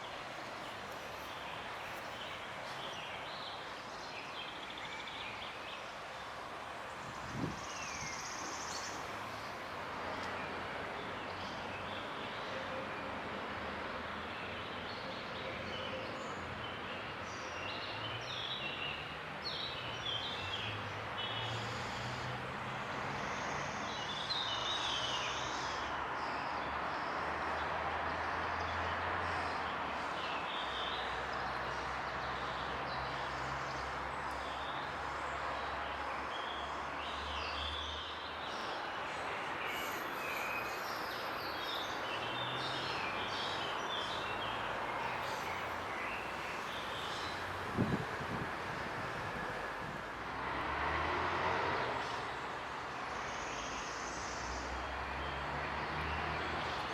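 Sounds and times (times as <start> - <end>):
distant traffic rumble: 42.0 - 56.9.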